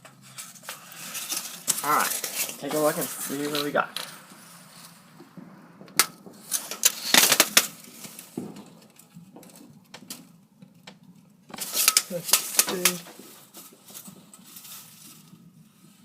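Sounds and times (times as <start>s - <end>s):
sharp clicks and pops: 5.2s - 13.2s.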